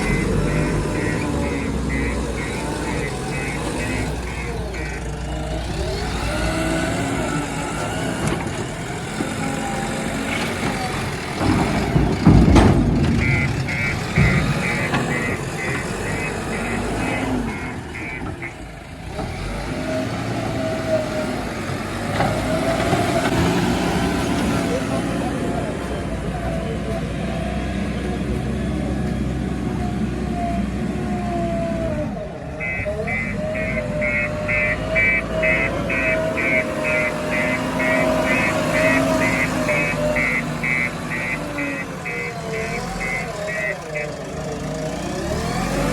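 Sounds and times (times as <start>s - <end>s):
reversing alarm beeping: 0.0s - 6.8s, 12.7s - 18.6s, 32.5s - 44.5s
heavy diesel machinery running: 0.0s - 45.9s.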